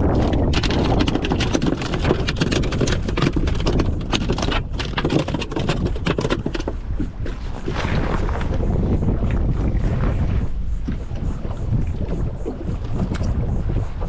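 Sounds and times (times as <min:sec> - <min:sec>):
rapid knocking and tapping: 0:00.0 - 0:07.4
wind rumble on microphone: 0:00.0 - 0:14.0.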